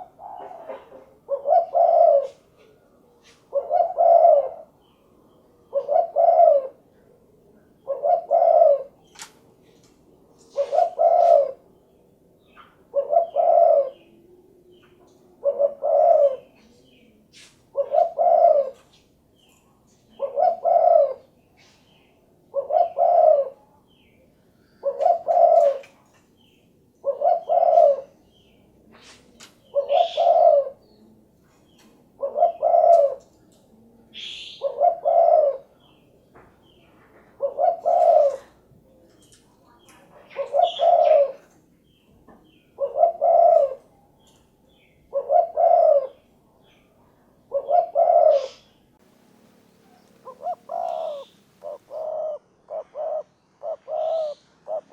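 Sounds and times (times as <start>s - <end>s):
dove cooing: 0.0s - 4.8s, 5.5s - 9.0s, 10.4s - 11.7s, 12.9s - 19.0s, 20.1s - 21.7s, 22.5s - 23.7s, 24.8s - 26.0s, 27.0s - 31.3s, 32.1s - 35.9s, 37.3s - 41.6s, 42.6s - 44.0s, 45.0s - 46.3s, 47.5s - 54.9s.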